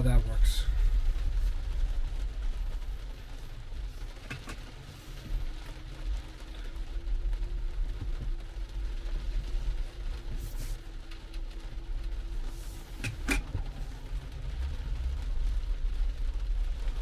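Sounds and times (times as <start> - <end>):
faint steady hum: 0.0 - 17.0
heavy rain on car: 0.0 - 17.0.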